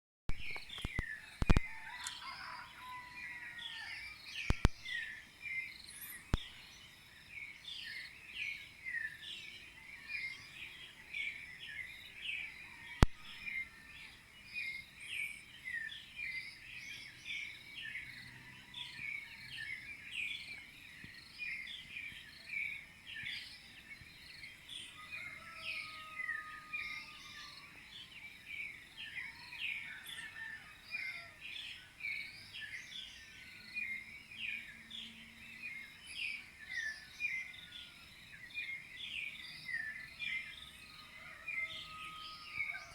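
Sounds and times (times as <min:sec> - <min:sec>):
sharp clicks: 0:00.3 - 0:02.2, 0:04.5 - 0:04.8
thrushes chirping chorus: 0:00.3 - 0:11.0, 0:34.6 - 0:42.9.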